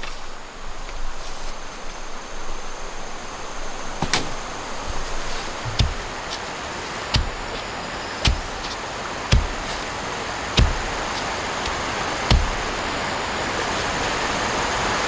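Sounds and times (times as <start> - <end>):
steady hiss: 0.0 - 15.0
sharp knocks with low thud: 5.1 - 6.4, 7.1 - 10.0, 10.6 - 13.0.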